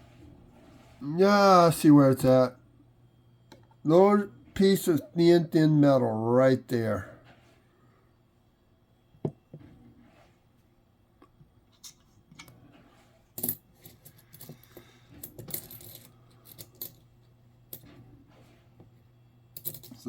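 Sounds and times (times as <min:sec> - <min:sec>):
coins clinking together: 0:13.4 - 0:17.0, 0:19.6 - 0:20.0.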